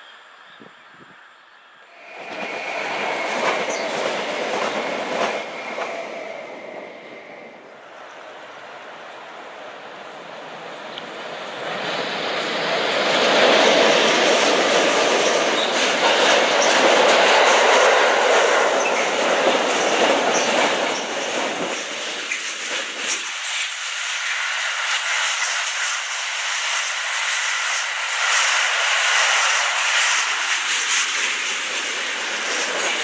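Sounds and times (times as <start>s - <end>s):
deep train rumble: 1.9s - 33.0s
freight train wheels on rails: 1.9s - 33.0s.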